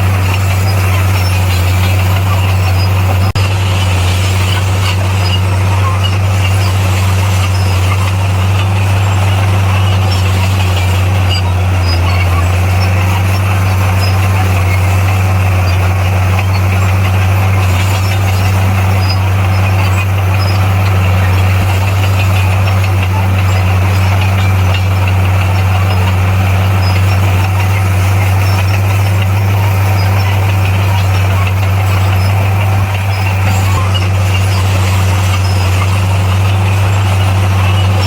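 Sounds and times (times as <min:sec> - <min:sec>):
bulldozer diesel engine running: 0:00.0 - 0:38.0.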